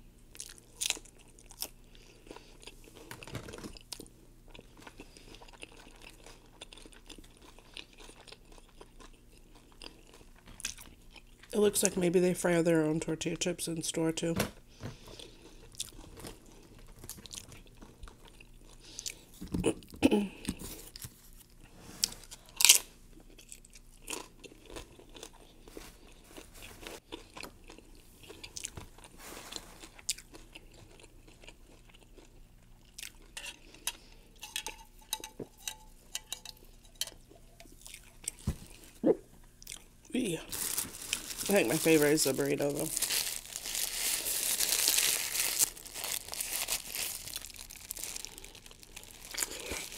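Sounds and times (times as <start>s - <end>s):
crunching tortilla chips: 0.3s - 11.5s, 39.6s - 49.9s
soft chewing: 0.3s - 11.6s, 14.9s - 41.6s, 42.9s - 49.9s.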